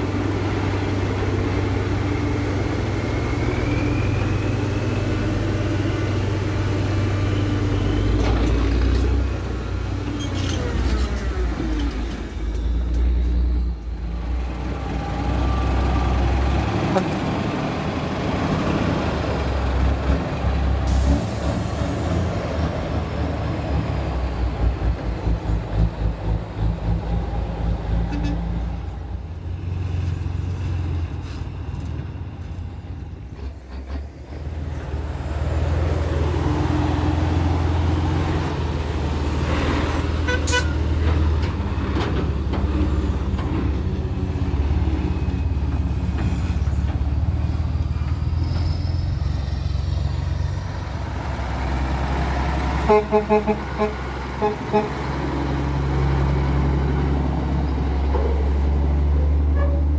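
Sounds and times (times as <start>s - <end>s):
truck engine droning: 0.0s - 59.9s
horn toot: 40.2s - 40.9s, 52.8s - 55.0s.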